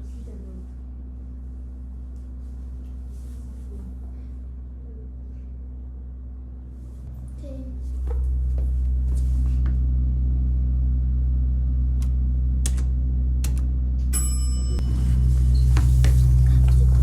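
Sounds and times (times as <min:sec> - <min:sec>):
elevator machine hum: 0:00.0 - 0:17.0
brief high ringing tone: 0:14.1 - 0:15.7.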